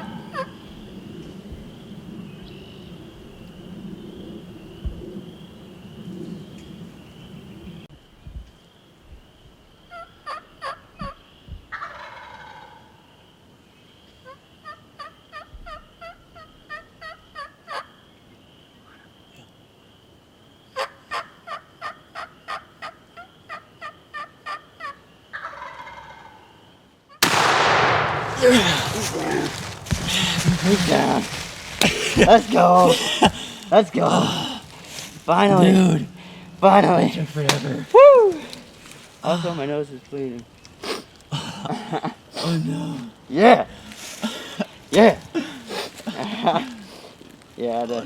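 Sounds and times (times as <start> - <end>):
turkey gobbling: 0.0 - 0.6, 9.9 - 10.9, 11.7 - 13.0, 14.6 - 18.0, 20.8 - 26.6
quick turkey yelps: 20.8 - 26.4.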